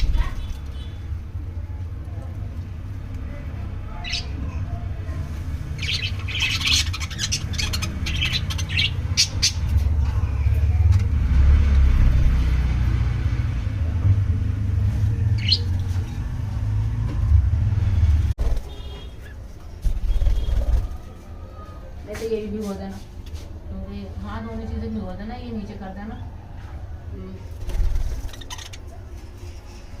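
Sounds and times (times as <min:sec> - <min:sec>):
budgerigars chirping: 0:04.0 - 0:04.4, 0:05.7 - 0:09.8, 0:15.4 - 0:15.7, 0:28.2 - 0:28.9.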